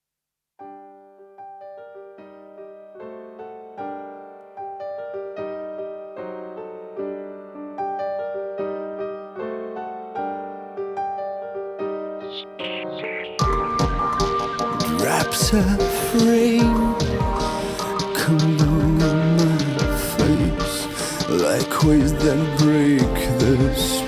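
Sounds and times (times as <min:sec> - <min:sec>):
keyboard playing broken chords: 0:12.0 - 0:24.0.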